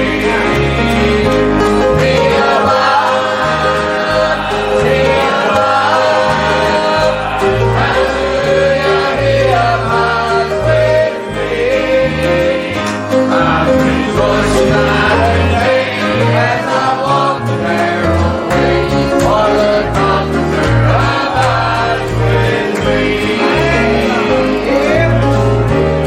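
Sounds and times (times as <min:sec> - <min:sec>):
group singing a gospel hymn: 0:00.0 - 0:26.0
instrumental accompaniment: 0:00.0 - 0:26.0.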